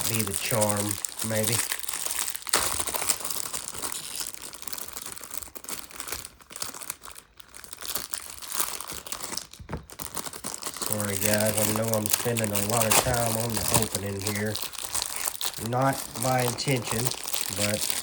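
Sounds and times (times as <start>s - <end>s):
plastic wrapper crinkling and tearing: 0.0s - 18.0s.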